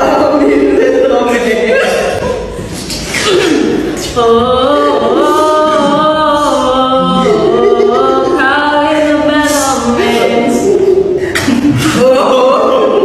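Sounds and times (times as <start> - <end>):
person singing unaccompanied: 4.0 - 11.1.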